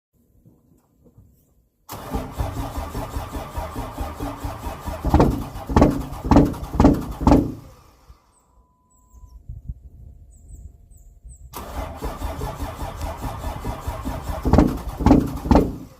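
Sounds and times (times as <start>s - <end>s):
starter cranking diesel engine: 1.9s - 8.3s, 11.5s - 15.9s
loud heavy engine pulses: 1.9s - 8.4s, 11.6s - 15.9s.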